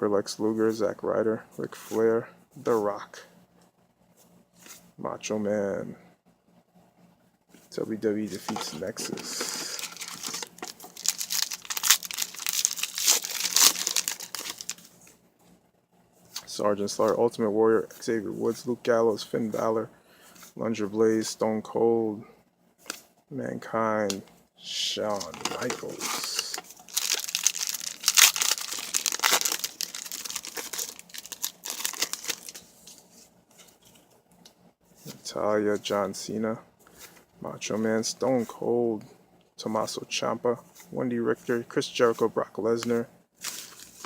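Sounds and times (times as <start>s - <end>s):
foil wrapper crinkling: 8.3s - 15.0s, 25.0s - 33.1s, 42.0s - 44.0s.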